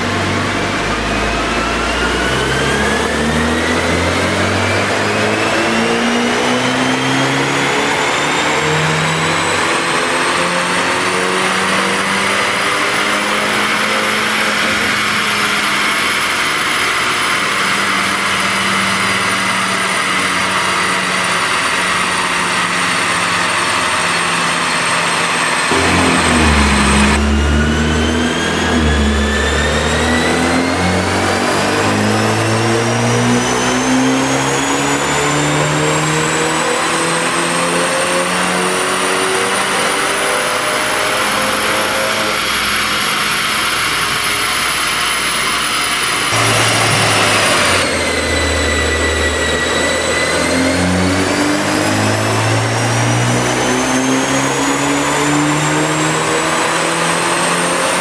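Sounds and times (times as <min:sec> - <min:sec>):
car engine revving on dyno: 0:00.0 - 0:58.0
drivetrain and rollers whining: 0:12.9 - 0:35.4, 0:41.3 - 0:54.0.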